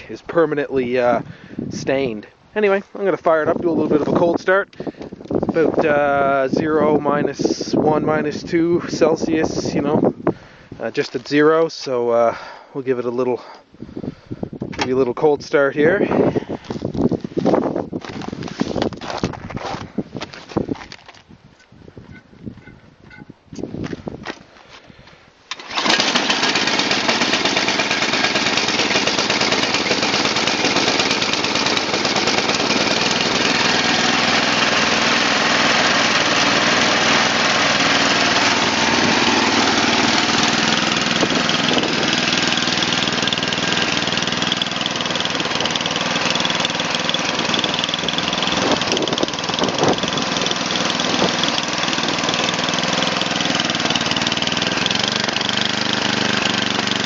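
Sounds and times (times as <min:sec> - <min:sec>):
snowblower engine starting and running: 0:03.1 - 0:12.7, 0:25.5 - 0:57.0.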